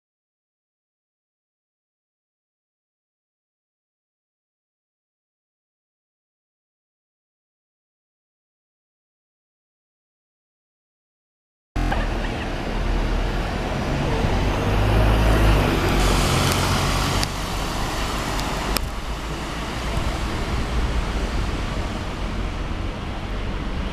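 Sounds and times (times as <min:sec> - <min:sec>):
bus diesel engine rumbling: 0:11.8 - 0:23.9.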